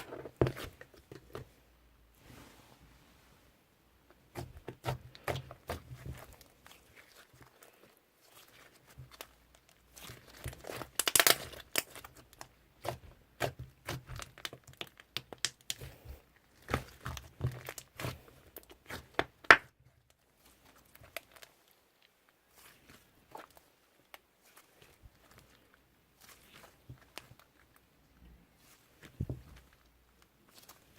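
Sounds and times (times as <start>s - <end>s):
slime crackling and popping: 8.3s - 15.8s, 16.5s - 21.6s.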